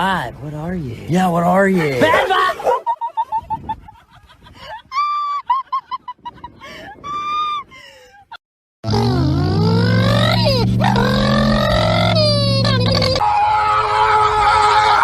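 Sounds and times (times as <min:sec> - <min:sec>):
rising wavering tones: 0:08.9 - 0:13.8.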